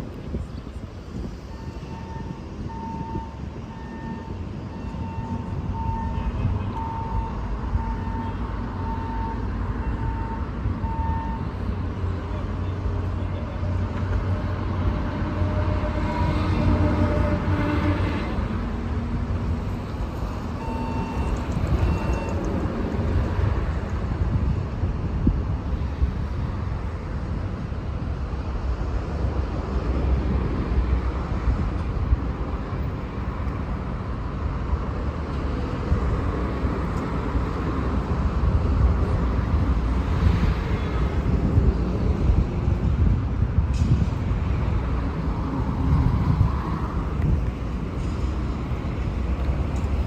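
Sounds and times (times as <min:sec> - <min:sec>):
passing cars rumble: 0:00.0 - 0:50.0
short beeps: 0:01.5 - 0:11.5, 0:20.6 - 0:22.4.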